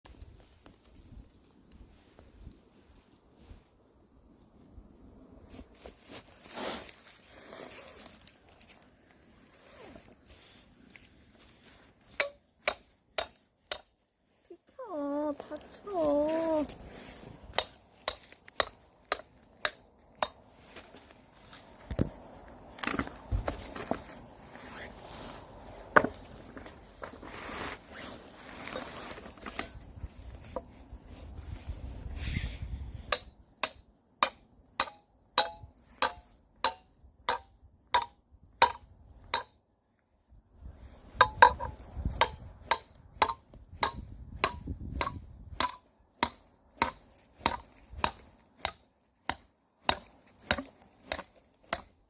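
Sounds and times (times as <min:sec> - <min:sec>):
rustling and handling noise: 0:00.1 - 0:33.1
firewood chopping strikes: 0:12.1 - 0:14.0, 0:17.5 - 0:20.5, 0:33.1 - 0:39.6, 0:41.2 - 0:52.0.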